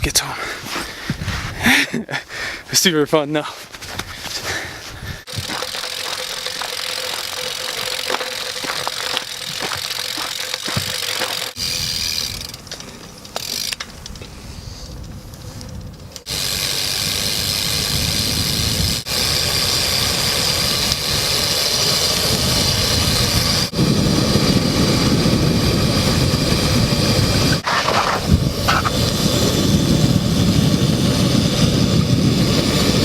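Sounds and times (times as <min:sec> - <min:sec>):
rushing wind: 0:00.0 - 0:02.7, 0:03.8 - 0:06.7, 0:13.9 - 0:33.0
bike rolling noise: 0:03.8 - 0:33.0.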